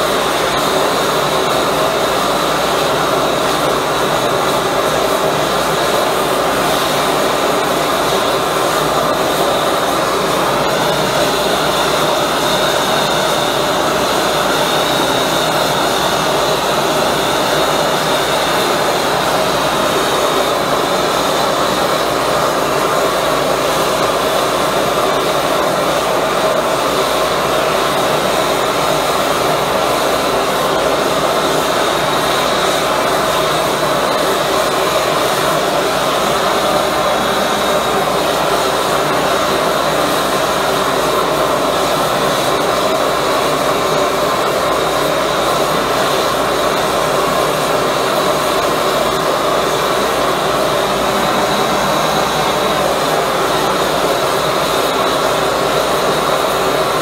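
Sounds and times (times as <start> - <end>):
burner flame rushing: 47.5 - 55.2.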